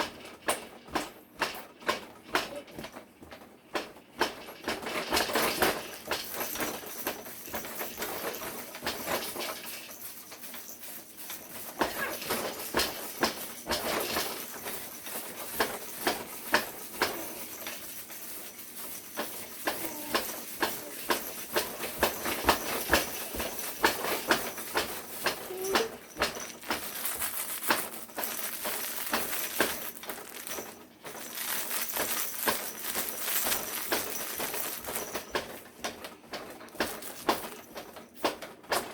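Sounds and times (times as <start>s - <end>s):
baby bouncer knocking: 19.2s - 38.9s.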